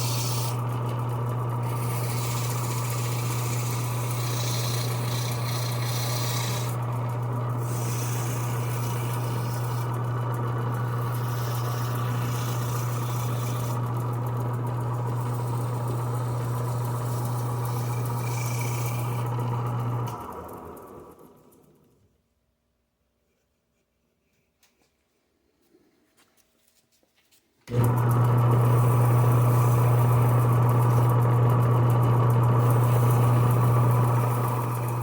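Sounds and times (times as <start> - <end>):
sandpaper hissing scrape: 0.0 - 0.6, 1.7 - 6.8
lathe humming: 0.0 - 21.7, 27.7 - 35.0.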